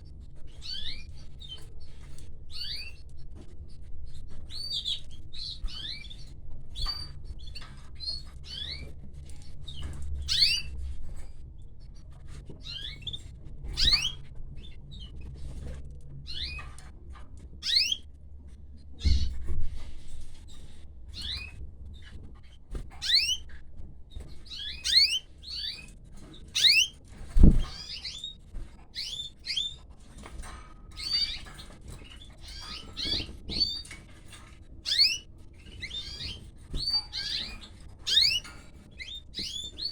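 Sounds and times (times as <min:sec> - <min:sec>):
canaries chirping: 0:00.3 - 0:11.3, 0:11.9 - 0:16.9, 0:17.6 - 0:18.1, 0:19.0 - 0:39.9.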